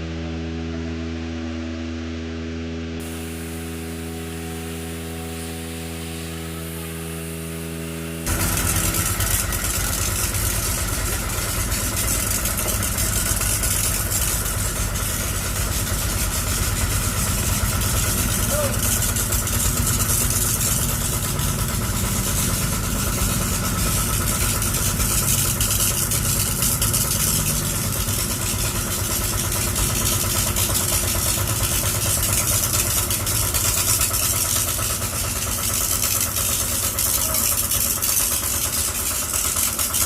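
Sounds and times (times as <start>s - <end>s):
heavy diesel engines rumbling: 8.3s - 35.4s.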